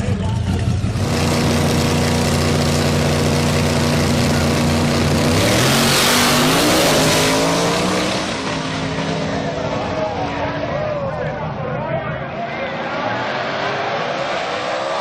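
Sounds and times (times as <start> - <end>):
car engine revving: 0.0 - 10.7.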